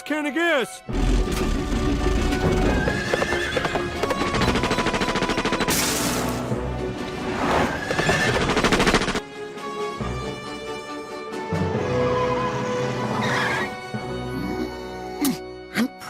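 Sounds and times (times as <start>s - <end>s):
dramatic soundtrack music: 0.7s - 16.0s
clatter of hooves: 2.1s - 5.5s
horses whinnying: 2.4s - 4.6s, 7.6s - 8.7s.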